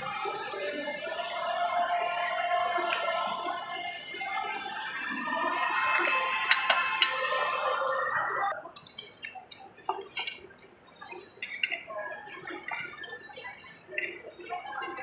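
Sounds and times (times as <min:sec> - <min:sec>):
background music: 0:00.0 - 0:15.0
faint diners chatter: 0:00.0 - 0:15.0
cutlery clinking on plates: 0:06.0 - 0:07.3, 0:08.6 - 0:15.0.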